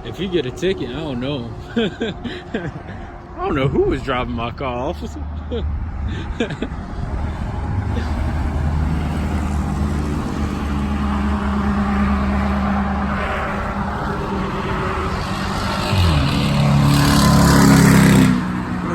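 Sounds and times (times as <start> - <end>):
car engine revving: 6.5 - 18.9.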